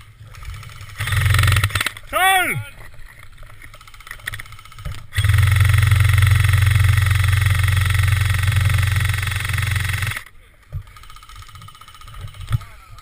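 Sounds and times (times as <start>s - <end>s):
airsoft gun automatic firing: 0.3s - 2.1s, 3.8s - 10.3s, 10.9s - 12.8s.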